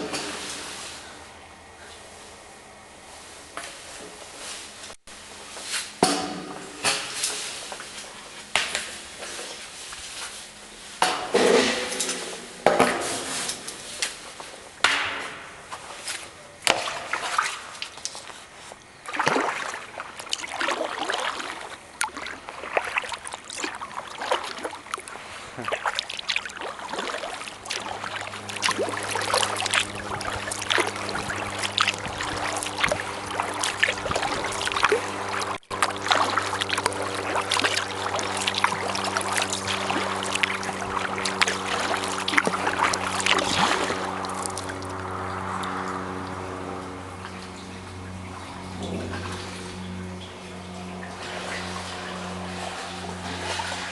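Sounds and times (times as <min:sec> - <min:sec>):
low engine-like hum: 0:00.0 - 0:53.9
kayak paddle splashing: 0:16.6 - 0:53.9
water dripping off paddle: 0:19.0 - 0:49.4.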